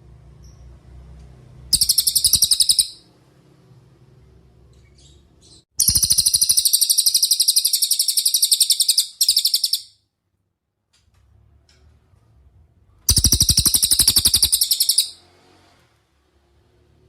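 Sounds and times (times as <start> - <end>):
bird trilling rapid high notes: 1.8 - 3.1, 5.8 - 10.0, 13.1 - 15.2.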